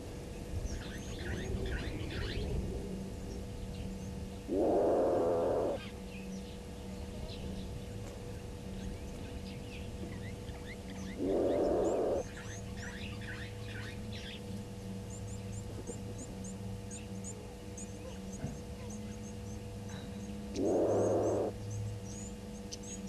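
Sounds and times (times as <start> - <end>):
small birds chirping: 0.0 - 2.6, 3.2 - 23.0
low steady hum: 0.0 - 23.0
loud rough buzzing: 4.4 - 6.0, 11.1 - 12.6, 20.6 - 21.8.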